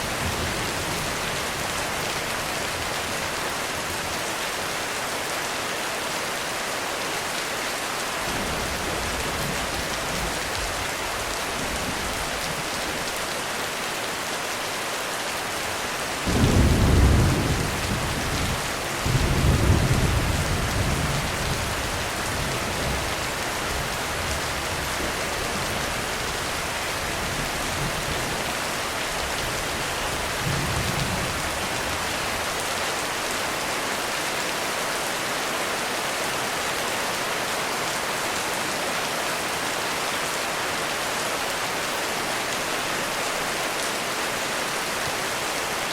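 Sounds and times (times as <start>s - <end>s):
heavy rain falling: 0.0s - 45.9s
thunder rumbling: 16.3s - 23.1s.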